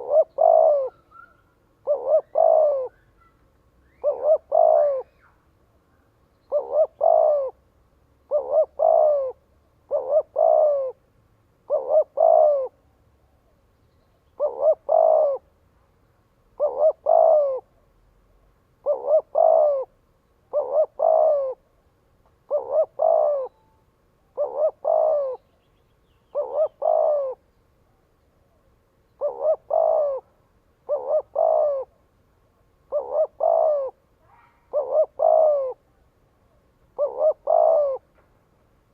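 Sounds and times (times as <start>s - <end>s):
dove cooing: 0.0s - 5.4s, 6.4s - 7.6s, 8.2s - 12.8s, 14.3s - 15.6s, 16.5s - 18.0s, 18.8s - 21.8s, 22.4s - 25.7s, 26.3s - 27.5s, 28.4s - 32.1s, 32.7s - 38.1s.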